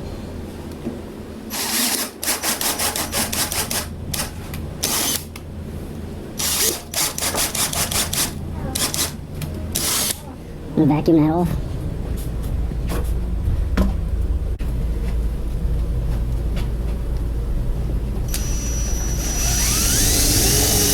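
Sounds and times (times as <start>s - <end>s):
steady low hum: 3.0s - 20.9s
power drill boring into wood: 18.3s - 20.9s.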